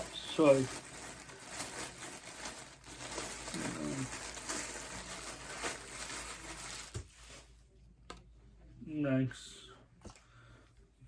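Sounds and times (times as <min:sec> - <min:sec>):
packaging and clothing rustling: 0:00.0 - 0:07.5.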